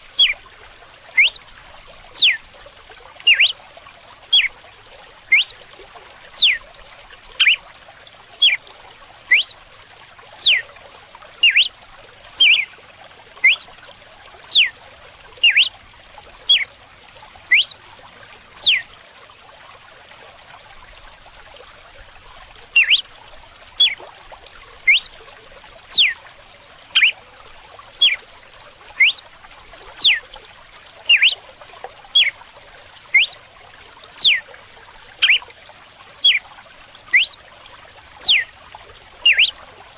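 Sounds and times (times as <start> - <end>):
running water trickling: 0.0 - 39.9
bird whistled song: 0.2 - 0.4, 1.2 - 1.4, 2.1 - 2.4, 3.3 - 3.6, 4.3 - 4.5, 5.3 - 5.6, 6.3 - 6.6, 7.4 - 7.6, 8.4 - 8.6, 9.3 - 9.6, 10.4 - 10.6, 11.4 - 11.7, 12.4 - 12.7, 13.4 - 13.7, 14.5 - 14.7, 15.4 - 15.7, 16.5 - 16.7, 17.5 - 17.8, 18.6 - 18.8, 22.8 - 23.1, 23.8 - 24.0, 24.8 - 25.1, 25.9 - 26.2, 27.0 - 27.2, 28.0 - 28.2, 29.0 - 29.2, 30.0 - 30.2, 31.1 - 31.4, 33.1 - 33.4, 34.2 - 34.4, 35.2 - 35.5, 36.2 - 36.4, 37.1 - 37.4, 38.2 - 38.5, 39.2 - 39.6.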